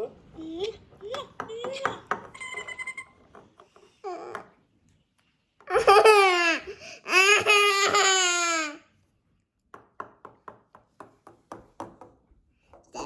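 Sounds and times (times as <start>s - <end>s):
toy playing baby-like laughing: 0.4s - 3.2s.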